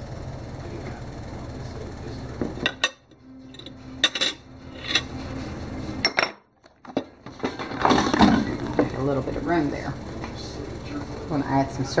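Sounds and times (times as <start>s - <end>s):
knife and dishes clinking: 2.6s - 5.2s.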